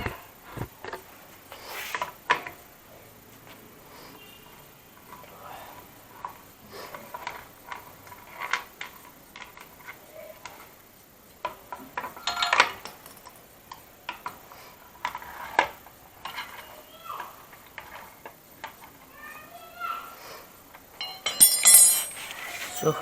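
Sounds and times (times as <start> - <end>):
wrench clinking on metal: 21.0 - 23.0.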